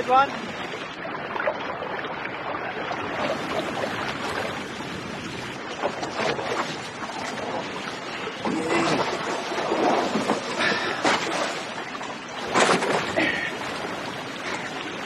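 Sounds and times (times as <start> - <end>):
wind on microphone: 0.0 - 11.7
water sloshing around boat: 0.0 - 15.0
sharp splashes and knocks: 8.4 - 14.0.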